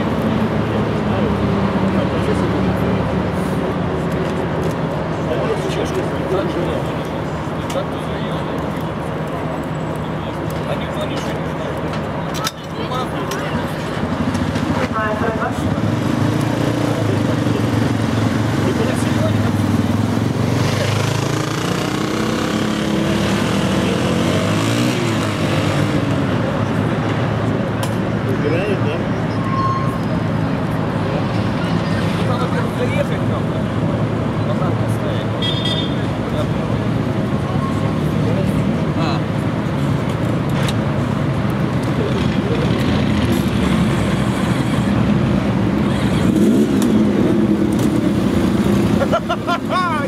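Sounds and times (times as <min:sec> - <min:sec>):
motorcycle engines revving: 0:00.0 - 0:50.0
motorcycle engine revving: 0:14.0 - 0:26.5, 0:42.0 - 0:49.3.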